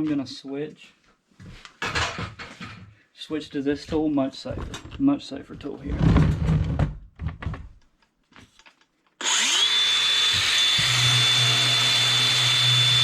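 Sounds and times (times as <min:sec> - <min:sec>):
power tool motor whine: 0:09.2 - 0:13.0.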